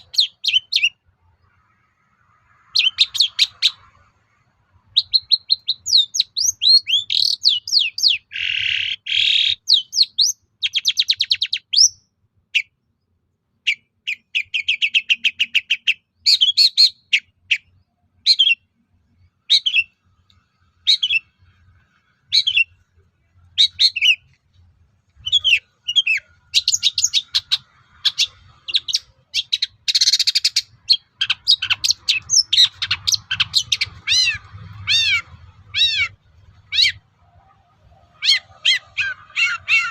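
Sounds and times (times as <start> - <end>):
shrike singing: 22.2 - 24.3, 25.2 - 39.9.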